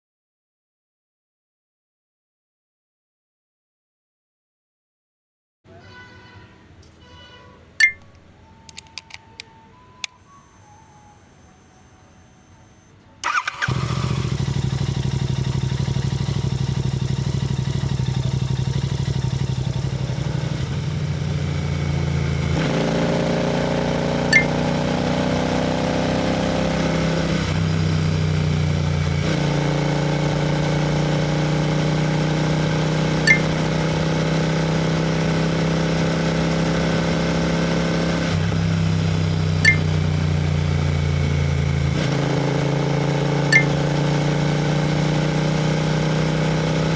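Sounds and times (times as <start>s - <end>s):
short sharp ticks: 7.8s - 10.2s, 33.2s - 33.6s
motorcycle engine and exhaust: 13.2s - 46.9s.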